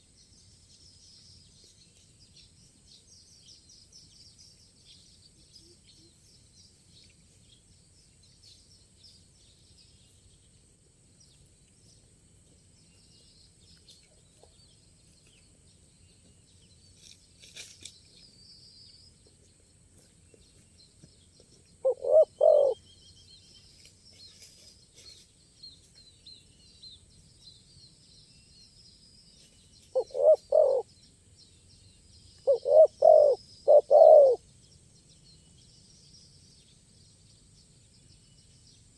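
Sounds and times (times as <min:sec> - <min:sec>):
small birds chirping: 0:00.0 - 0:38.9
dove cooing: 0:21.8 - 0:22.8, 0:30.0 - 0:30.8, 0:32.5 - 0:34.4.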